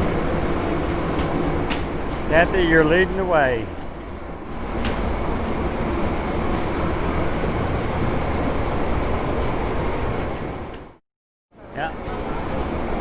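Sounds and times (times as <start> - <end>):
diesel locomotives idling: 0.0 - 11.0.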